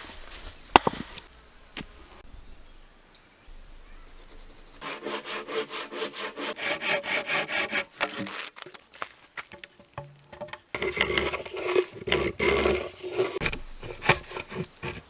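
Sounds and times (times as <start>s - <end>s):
hand saw cutting wood: 4.2s - 15.0s.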